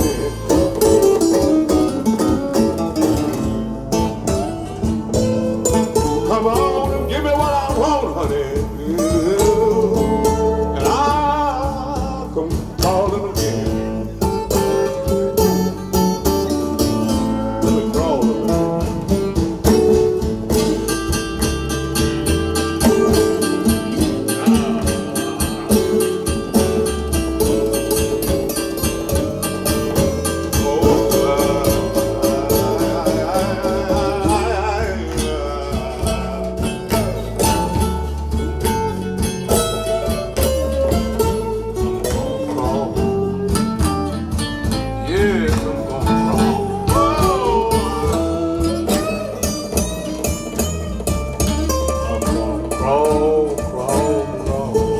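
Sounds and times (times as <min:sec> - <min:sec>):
acoustic guitar song: 0:00.0 - 0:54.9
person singing: 0:05.4 - 0:15.8, 0:17.0 - 0:21.2, 0:28.0 - 0:37.9, 0:42.0 - 0:49.4, 0:52.0 - 0:54.9.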